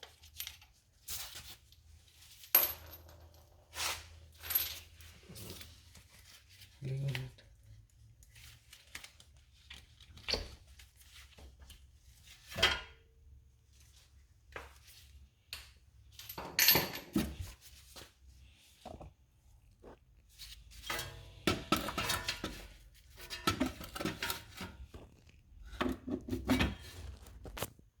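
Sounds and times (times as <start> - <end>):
metal tools clinking and knocking: 15.6 - 17.5, 20.8 - 24.9.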